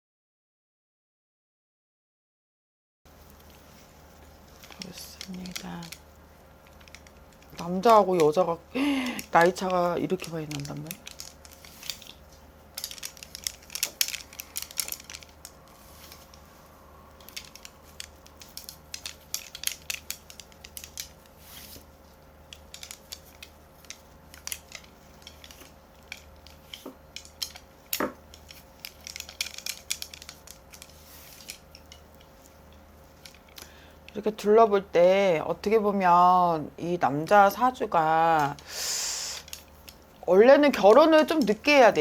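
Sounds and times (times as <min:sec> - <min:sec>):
faint steady hum: 0:03.1 - 0:42.0.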